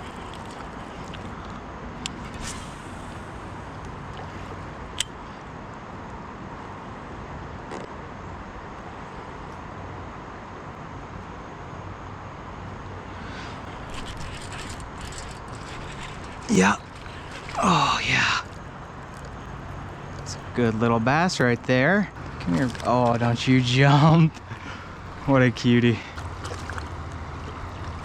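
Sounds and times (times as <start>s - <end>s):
small ticks: 0.0s - 5.2s, 13.6s - 17.6s
sharp click: 5.0s - 5.2s
river current rushing: 13.1s - 20.2s.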